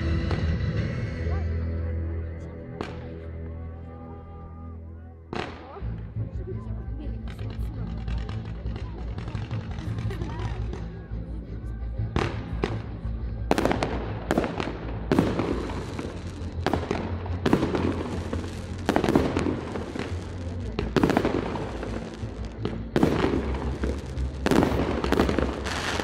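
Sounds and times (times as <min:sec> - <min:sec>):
fireworks bursting with bangs: 0:00.0 - 0:01.0, 0:02.8 - 0:03.2, 0:05.3 - 0:05.8, 0:07.2 - 0:11.1, 0:12.1 - 0:26.0
music playing: 0:00.0 - 0:26.0.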